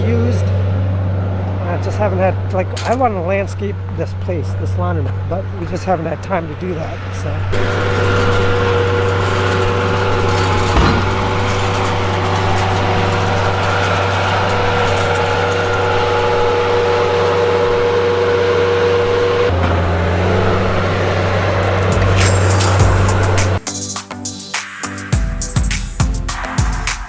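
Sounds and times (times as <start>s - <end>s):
engine running with whine: 7.6s - 23.6s.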